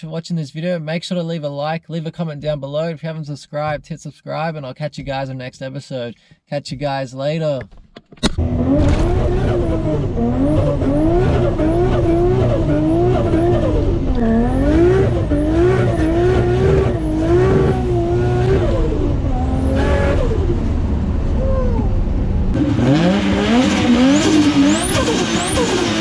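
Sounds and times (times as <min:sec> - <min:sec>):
car engine revving: 0:08.2 - 0:26.0.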